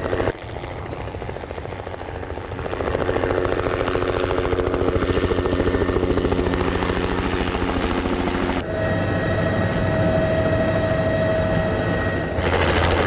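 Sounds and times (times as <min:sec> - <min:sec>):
helicopter blade chop: 0:00.0 - 0:08.6.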